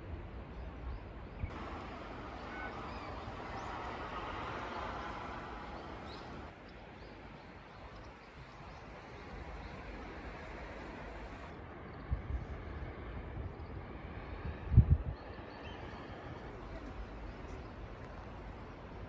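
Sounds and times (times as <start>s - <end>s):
distant vehicle passing: 1.5s - 6.5s.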